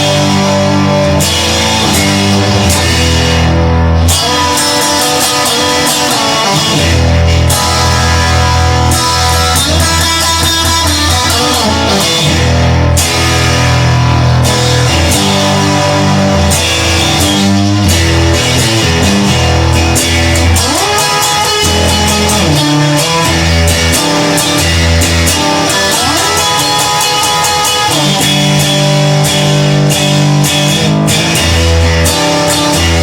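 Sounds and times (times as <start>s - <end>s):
rock music with guitar and drums: 0.0s - 33.0s.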